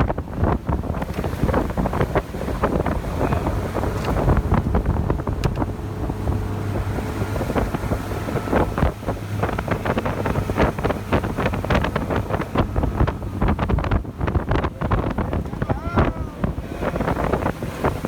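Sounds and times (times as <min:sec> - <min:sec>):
rapid irregular knocks and crackles: 0:00.0 - 0:05.8
wind buffeting microphone: 0:00.0 - 0:18.0.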